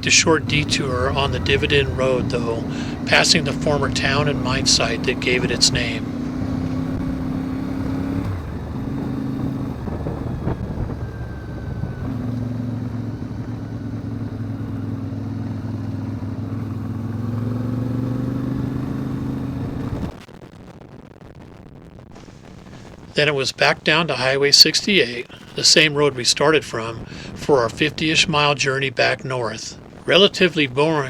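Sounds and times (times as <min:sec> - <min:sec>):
motorcycle engine running: 0:00.0 - 0:20.2
wind and road rush: 0:00.0 - 0:31.0.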